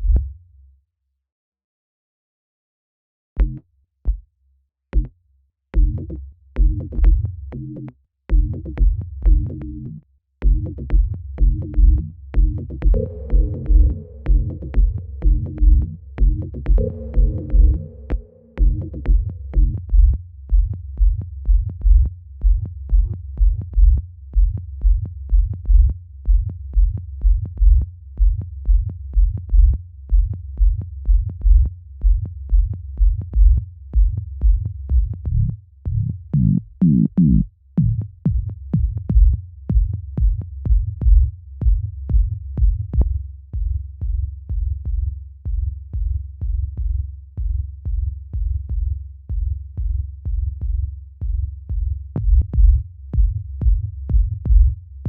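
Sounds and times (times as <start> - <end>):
drum machine kick and bass loop: 3.4 - 4.3, 5.0 - 5.2, 5.8 - 55.0
pitch-bending synth: 16.8 - 18.8.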